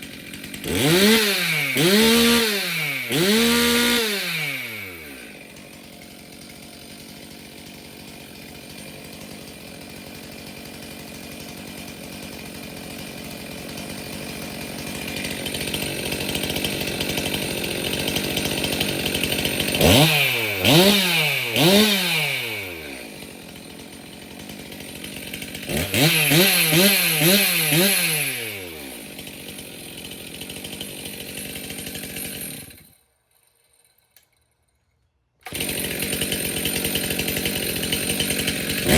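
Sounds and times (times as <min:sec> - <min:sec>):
chainsaw idling and revving: 0:00.0 - 0:34.5, 0:35.4 - 0:38.9.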